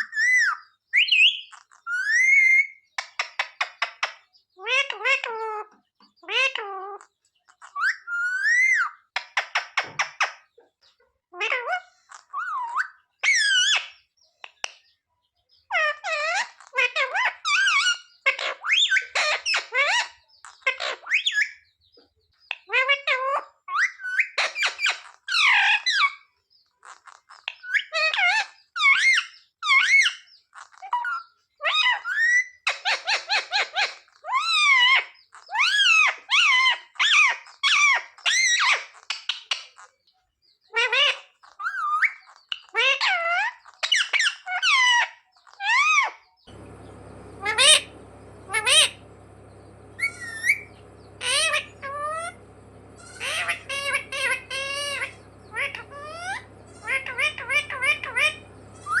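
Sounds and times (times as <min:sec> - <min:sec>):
parrot calling and chattering: 0:46.5 - 0:59.0
steady low hum: 0:46.5 - 0:59.0.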